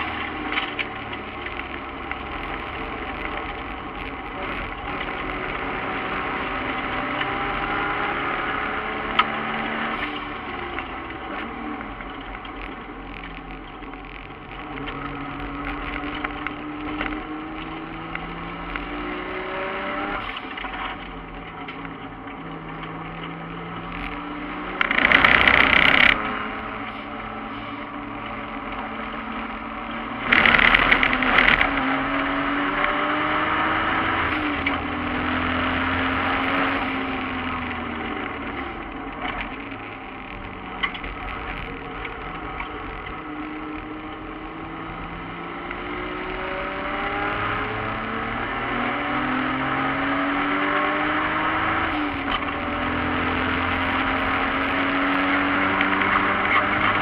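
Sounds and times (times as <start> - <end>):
race car engine accelerating: 0.0 - 57.0
loud rush of noise: 24.8 - 27.7.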